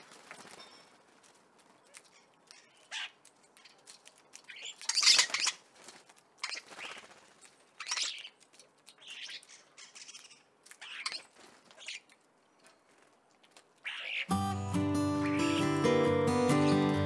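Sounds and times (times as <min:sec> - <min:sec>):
bird calling: 0:13.8 - 0:17.0.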